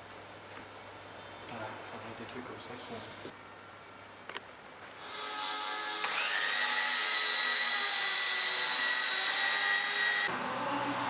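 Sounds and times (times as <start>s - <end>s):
power tool motor whine: 5.0s - 11.0s.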